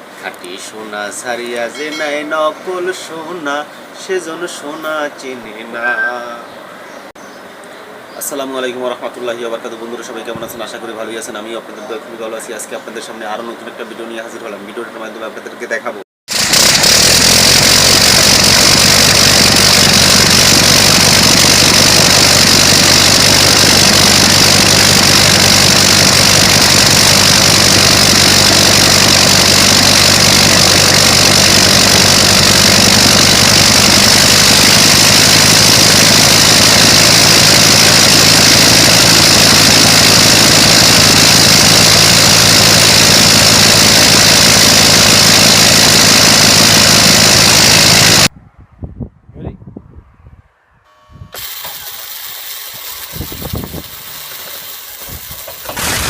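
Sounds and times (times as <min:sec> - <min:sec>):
aircraft piston engine running: 0:16.3 - 0:48.3, 0:51.3 - 0:56.0.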